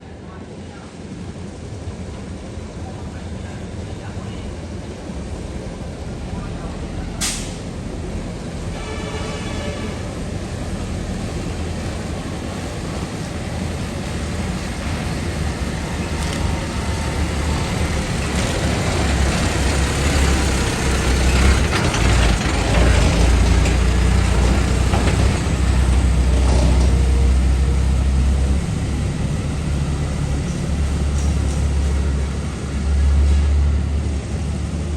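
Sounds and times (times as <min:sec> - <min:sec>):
diesel truck engine running: 0:10.2 - 0:33.1.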